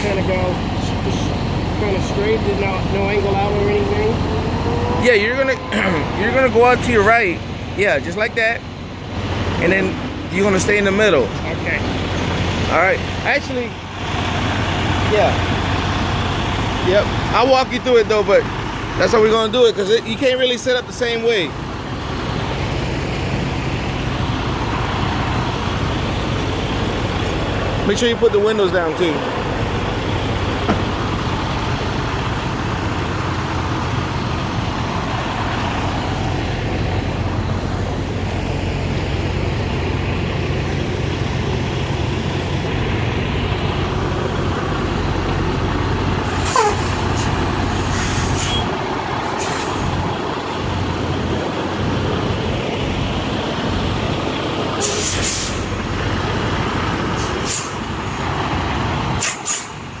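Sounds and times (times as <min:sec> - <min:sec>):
truck diesel engine running: 0:00.0 - 1:00.0
air brake hisses: 0:46.2 - 0:50.0, 0:54.8 - 0:55.8, 0:57.2 - 0:57.9, 0:59.2 - 0:59.9.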